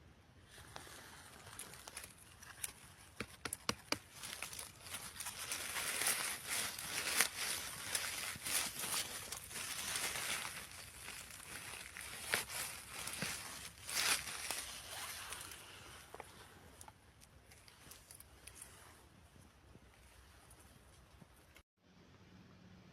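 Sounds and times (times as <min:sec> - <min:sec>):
dry leaves rustling and crunching: 0:00.6 - 0:19.0
twigs snapping: 0:00.8 - 0:18.6.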